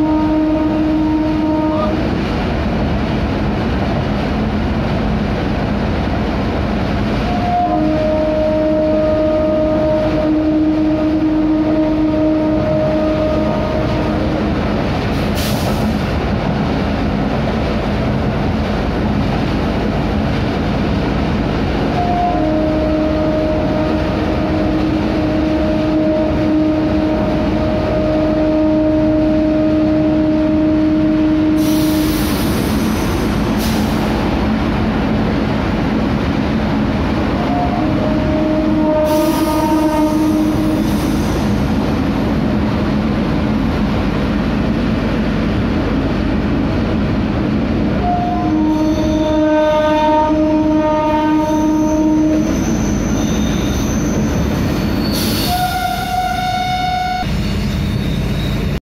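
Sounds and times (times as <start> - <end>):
train horn: 0.0 - 2.1, 7.2 - 14.4, 21.9 - 32.5, 37.4 - 42.0, 48.0 - 57.3
train rumbling in a tunnel: 0.0 - 58.8.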